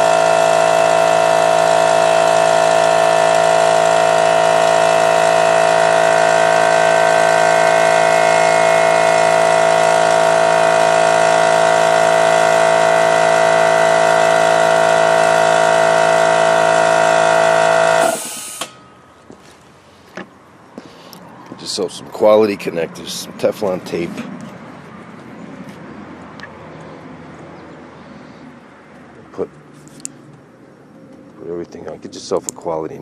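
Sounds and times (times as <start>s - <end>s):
air compressor pumping hum: 0.0s - 21.8s.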